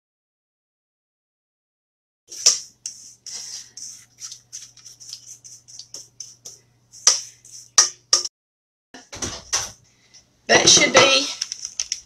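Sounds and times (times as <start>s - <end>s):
utensil scraping a mixing bowl: 2.3s - 8.2s.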